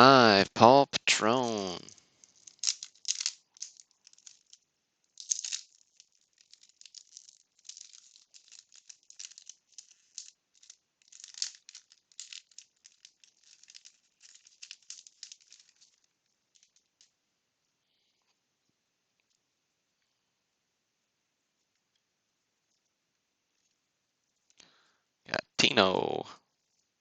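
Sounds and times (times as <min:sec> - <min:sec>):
cards flicked and rustled: 0:01.4 - 0:17.1.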